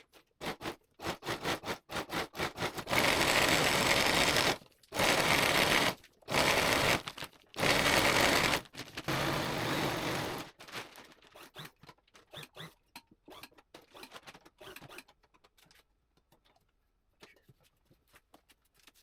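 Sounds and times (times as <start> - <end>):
sewing machine running: 2.5 - 10.6.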